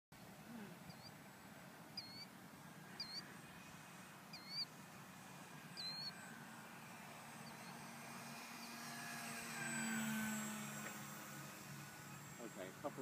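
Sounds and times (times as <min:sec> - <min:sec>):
outdoor background noise: 0:00.2 - 0:13.0
small bird high call: 0:00.8 - 0:01.2, 0:02.0 - 0:02.3, 0:02.9 - 0:03.4, 0:04.3 - 0:04.7, 0:05.8 - 0:06.2.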